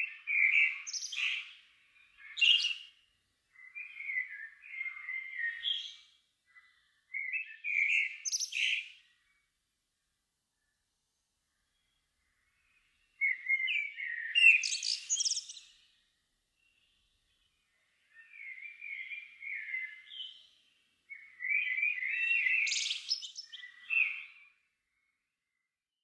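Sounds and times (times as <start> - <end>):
songbird warbling: 7.6 - 8.8, 13.2 - 15.6, 21.1 - 24.3.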